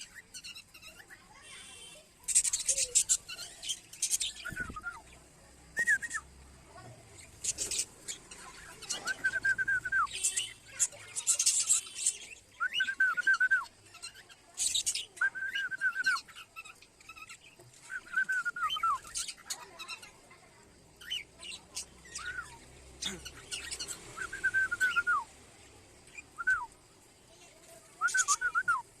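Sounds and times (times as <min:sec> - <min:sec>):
parrots whistling calls: 0:22.0 - 0:25.3, 0:28.0 - 0:28.9
quick high bird chirps: 0:28.0 - 0:28.9.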